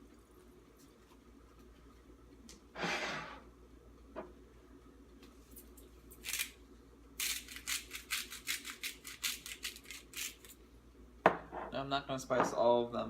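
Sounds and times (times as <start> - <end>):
spice shaker rattling: 7.2 - 10.6.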